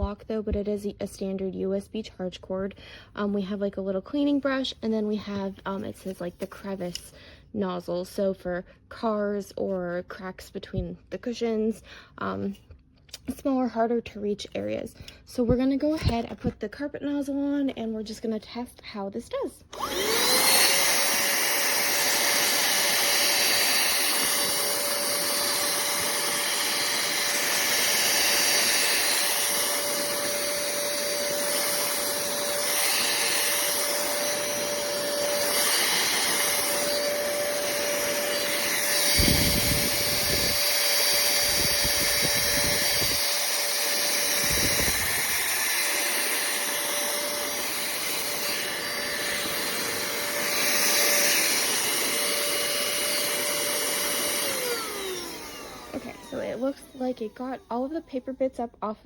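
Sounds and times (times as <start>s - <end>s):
handheld vacuum cleaner whining: 19.6s - 58.3s.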